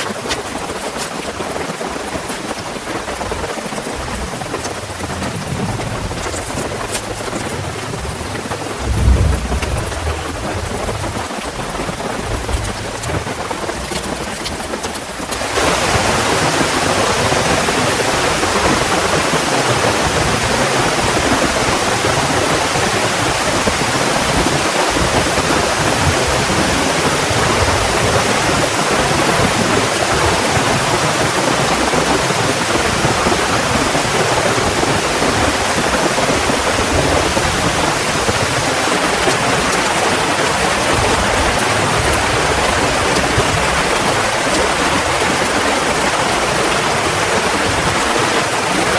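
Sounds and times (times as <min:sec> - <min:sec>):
heavy rain pouring: 0:00.0 - 0:48.9.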